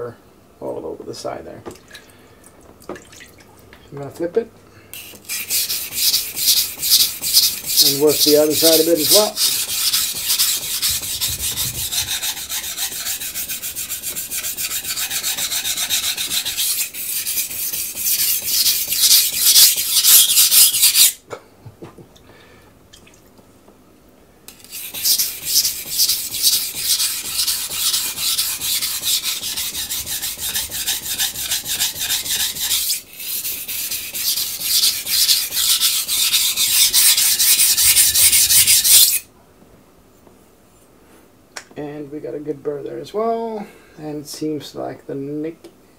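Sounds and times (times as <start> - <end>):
knife scraping on wet whetstone: 5.0 - 21.2, 24.5 - 39.2.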